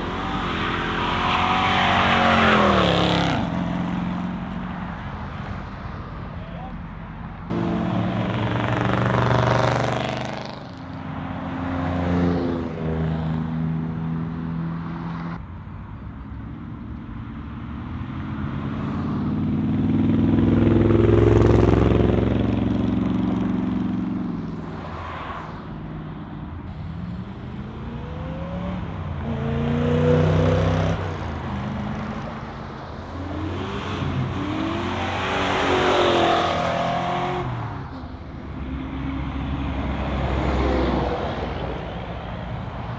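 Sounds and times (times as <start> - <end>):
engine revs: 7.5 - 10.8, 26.7 - 32.4, 33.0 - 37.8
muscle cars driving past: 7.5 - 15.4.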